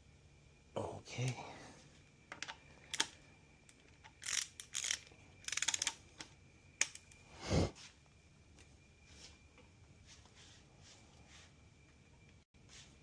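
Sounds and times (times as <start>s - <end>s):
ratchet wrench clicks: 2.4s - 6.0s, 6.8s - 7.2s
wrench rasping strokes: 4.2s - 5.9s.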